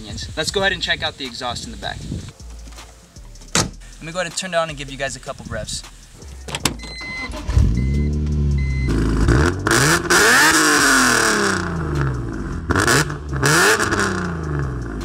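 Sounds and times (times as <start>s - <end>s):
car engine starting and revving: 6.4s - 15.0s.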